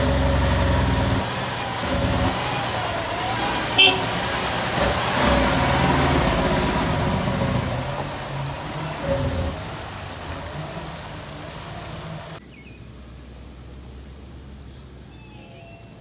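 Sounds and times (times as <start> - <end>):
truck engine running: 0.0 - 12.4.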